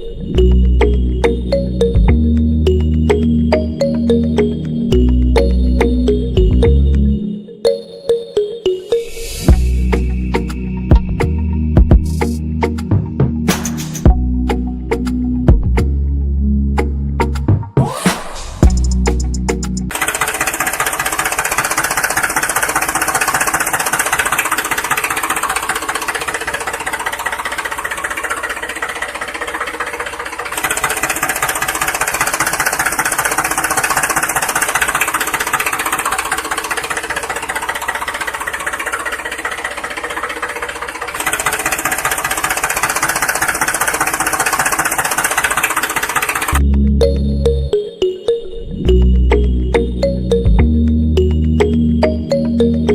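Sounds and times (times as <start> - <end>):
small motor rattling: 19.9 - 46.6.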